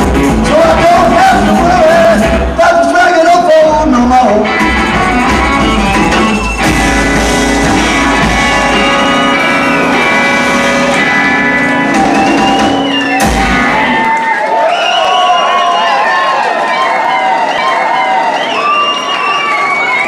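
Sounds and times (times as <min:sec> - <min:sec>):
rockabilly band playing live: 0:00.0 - 0:14.3.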